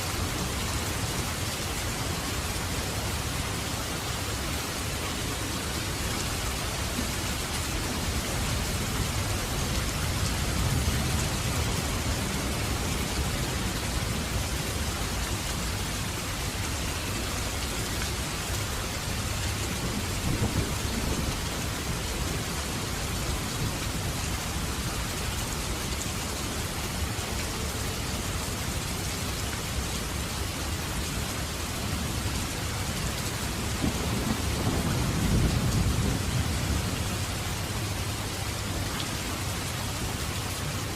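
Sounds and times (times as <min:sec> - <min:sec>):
heavy rain hissing: 0:00.0 - 0:40.9.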